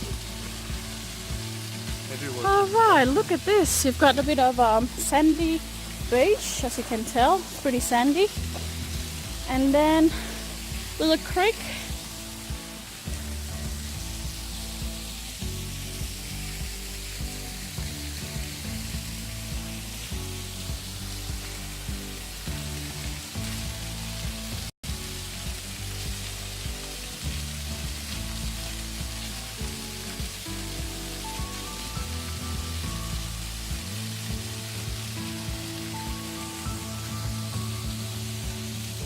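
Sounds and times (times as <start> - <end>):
slow bass notes and chords: 0.0 - 2.1, 3.0 - 39.0
waterfall and creek rushing: 0.0 - 39.0.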